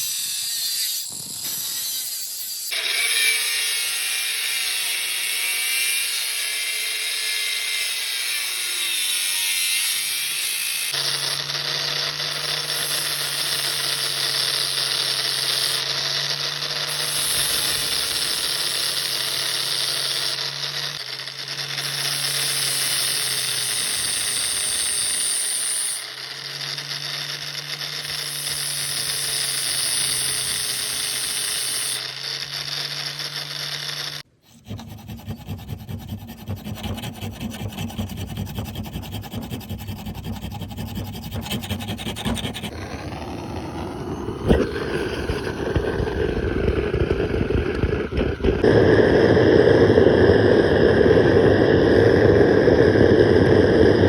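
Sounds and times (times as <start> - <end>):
metal rasping and scraping: 0.0 - 43.3
power tool motor running: 10.0 - 34.3, 37.1 - 54.0.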